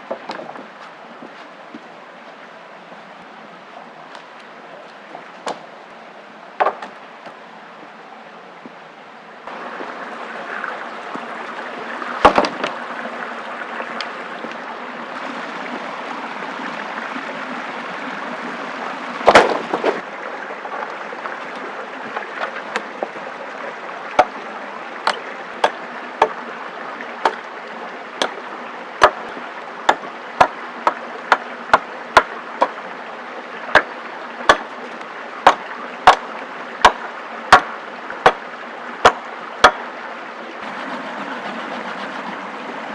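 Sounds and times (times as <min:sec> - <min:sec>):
loud knocks: 0:12.2 - 0:12.7.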